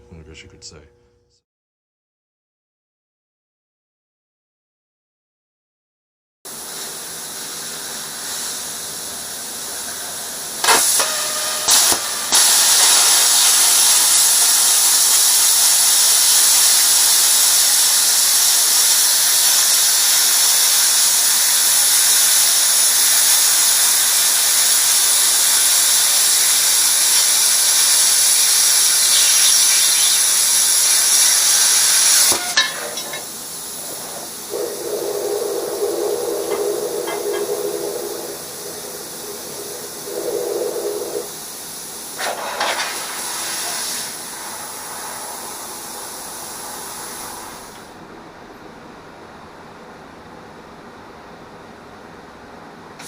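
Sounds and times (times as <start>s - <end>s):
plasma cutter hissing: 6.5s - 48.0s.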